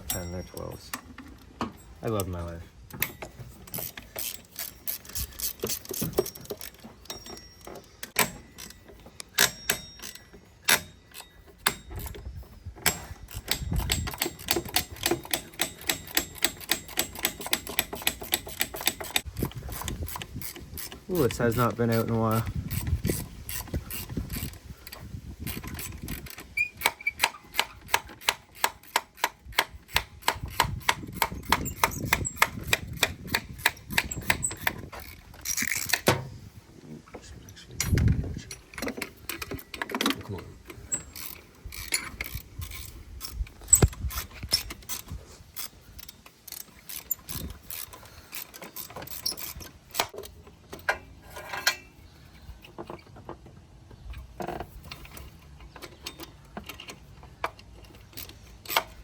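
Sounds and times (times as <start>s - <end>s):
ratchet wrench clicking: 3.0s - 12.2s, 12.8s - 36.1s, 40.8s - 50.2s
sharp metal clank: 8.2s - 11.0s.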